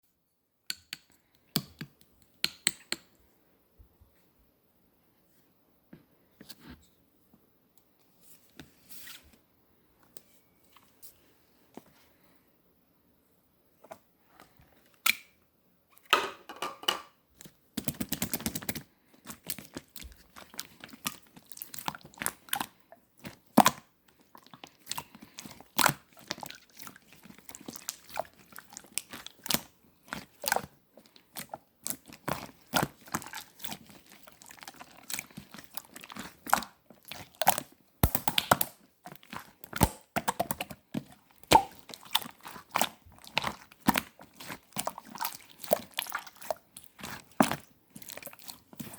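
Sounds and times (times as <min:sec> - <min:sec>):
slime clicking and popping: 0:31.4 - 0:48.9.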